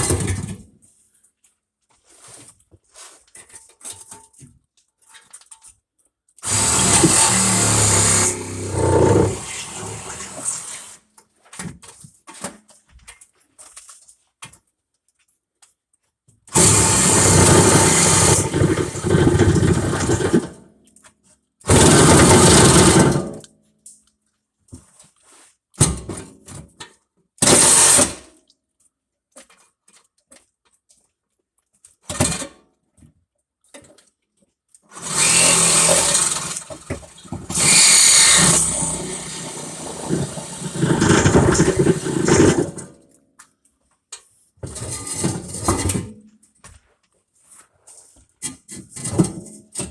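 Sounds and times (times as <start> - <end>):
power tool cutting metal: 6.4 - 11.0, 16.5 - 20.6, 21.7 - 23.4, 27.4 - 28.2, 34.9 - 43.0.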